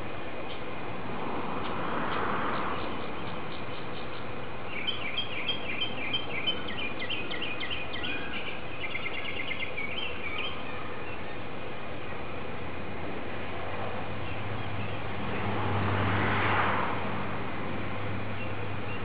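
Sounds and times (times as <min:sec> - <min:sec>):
steady outdoor hiss: 0:00.0 - 0:19.0
small bird chirping: 0:02.7 - 0:11.4.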